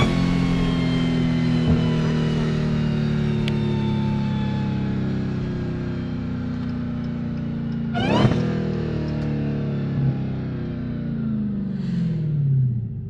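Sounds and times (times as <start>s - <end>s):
car engine running: 0.0s - 13.0s
short sudden burst: 8.0s - 8.5s.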